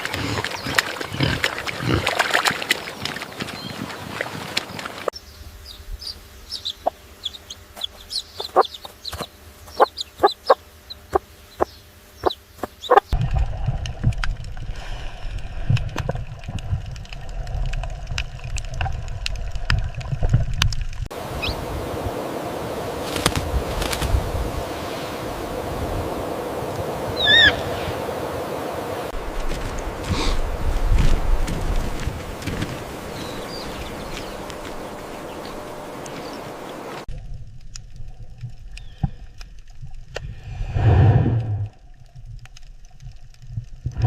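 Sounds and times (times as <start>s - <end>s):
high chirps: 6.0s - 13.2s
chickens clucking: 6.6s - 13.2s
low rumble: 13.1s - 44.0s.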